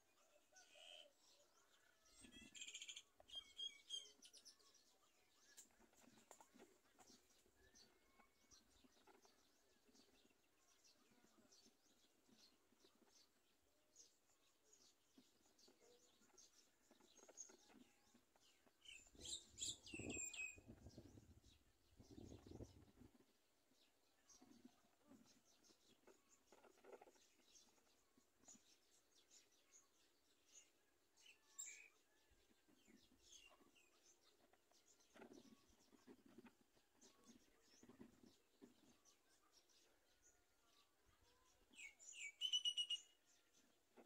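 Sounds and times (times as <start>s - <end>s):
bird calls and chirps: 0.0s - 44.0s
bird chirps and whistles: 42.4s - 43.0s.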